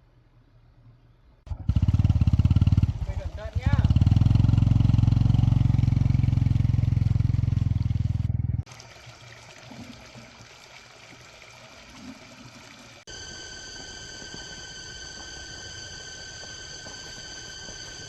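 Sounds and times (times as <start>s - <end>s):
faint outdoor background: 0.0s - 18.0s
small motorcycle engine running: 1.5s - 8.7s, 13.1s - 18.0s.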